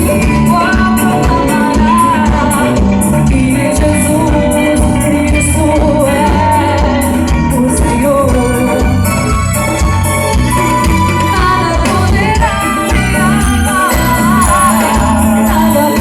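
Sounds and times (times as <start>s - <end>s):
band playing bass and beat: 0.0s - 16.0s
person singing: 11.4s - 16.0s.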